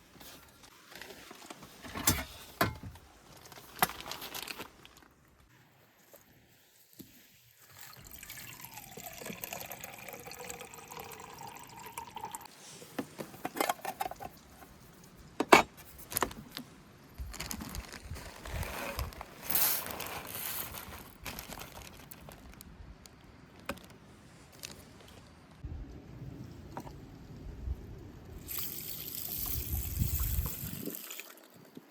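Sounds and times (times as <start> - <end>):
rustling handling noise: 0.0 - 7.4, 12.5 - 25.6
liquid pouring into container: 7.6 - 12.5.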